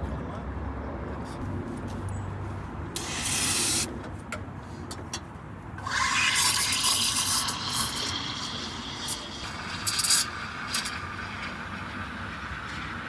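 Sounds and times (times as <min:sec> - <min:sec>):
steam wand hissing: 0:03.0 - 0:03.9, 0:05.8 - 0:13.0.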